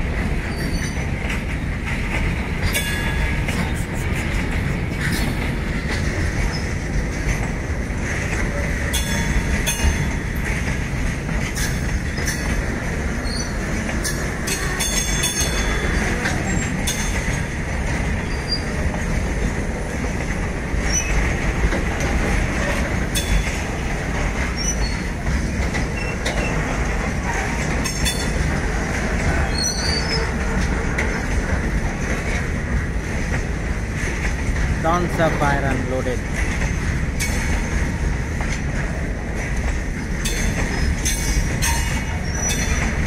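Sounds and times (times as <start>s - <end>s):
freight wagons rolling on rails: 0.0s - 43.0s
high wheel squeals: 13.2s - 13.6s, 18.2s - 18.8s, 40.4s - 42.9s.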